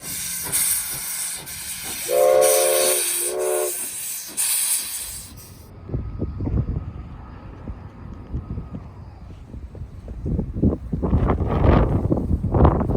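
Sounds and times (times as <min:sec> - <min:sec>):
loud steady hiss: 0:00.0 - 0:05.7
train chime whistle: 0:01.9 - 0:04.0.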